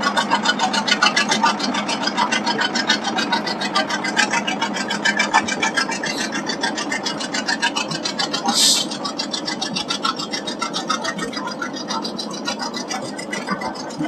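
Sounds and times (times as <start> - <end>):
diesel engine exhaust pulses: 0.0 - 14.0.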